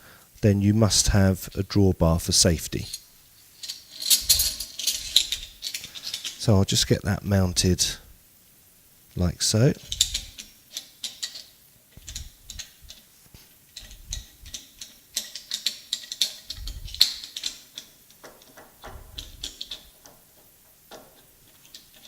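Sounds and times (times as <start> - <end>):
metal clicks and clinks: 2.8 - 6.4, 9.8 - 13.1, 13.8 - 22.0.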